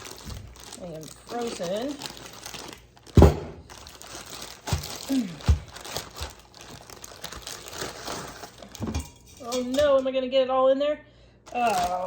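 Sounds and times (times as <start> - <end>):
frozen meat knocking: 0.0 - 0.8, 1.4 - 8.0
plastic packaging crinkling: 0.0 - 10.0, 11.5 - 12.0.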